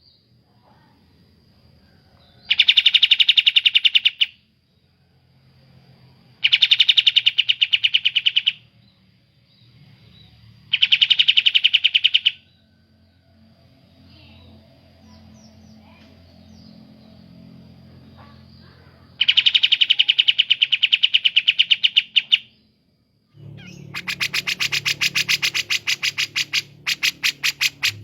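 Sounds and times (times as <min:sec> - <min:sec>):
bird rattling trills: 0:23.6 - 0:28.0.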